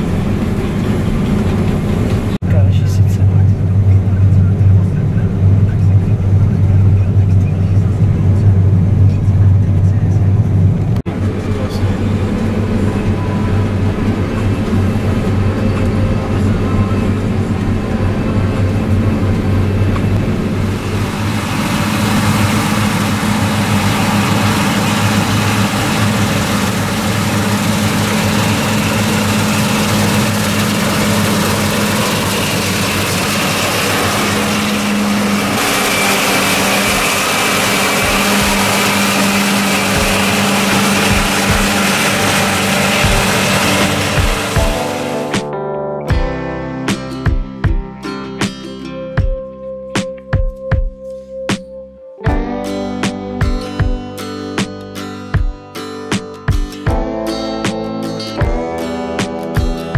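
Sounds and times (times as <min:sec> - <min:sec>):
vehicle engine humming low: 0:00.0 - 0:45.4.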